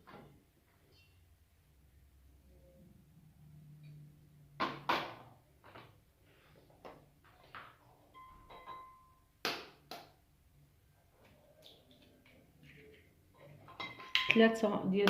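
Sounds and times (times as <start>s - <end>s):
kitchen bowls knocking: 13.4s - 15.0s.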